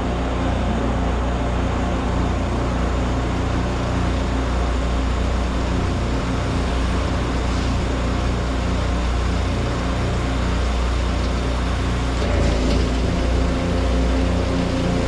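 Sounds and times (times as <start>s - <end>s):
pressure washer engines running: 0.0s - 15.0s.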